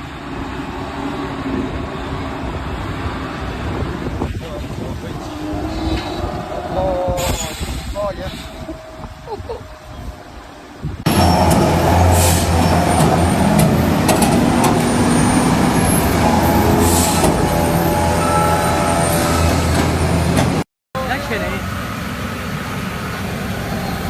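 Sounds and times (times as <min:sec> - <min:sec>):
truck engine running: 0:01.3 - 0:18.0, 0:19.7 - 0:24.0
short hisses: 0:07.2 - 0:08.6.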